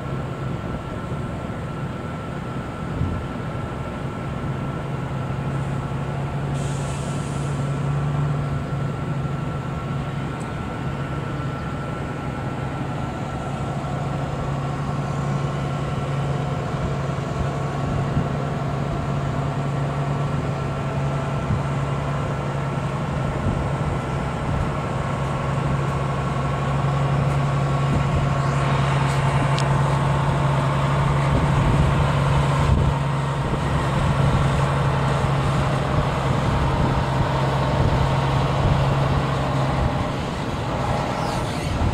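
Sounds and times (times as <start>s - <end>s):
truck engine running: 0.0s - 41.9s
air hiss: 6.5s - 7.8s.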